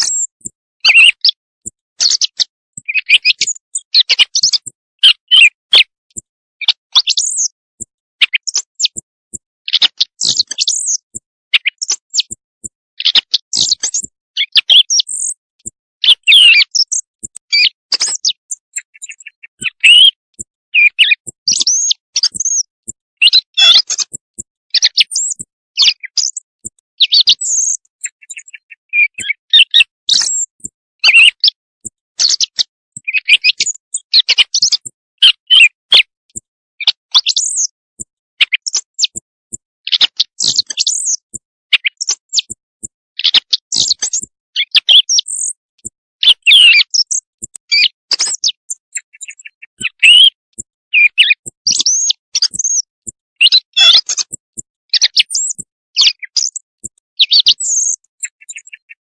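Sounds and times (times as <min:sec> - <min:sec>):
bird call recording: 0:00.0 - 0:01.4, 0:02.0 - 0:05.9, 0:13.0 - 0:15.4, 0:16.0 - 0:20.2, 0:49.3 - 0:50.3.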